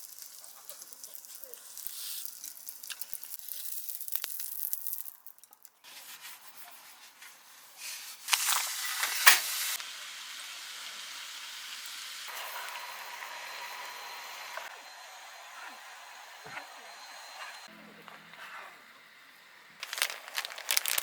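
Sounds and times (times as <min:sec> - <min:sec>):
food sizzling in a pan: 0:00.0 - 0:17.7.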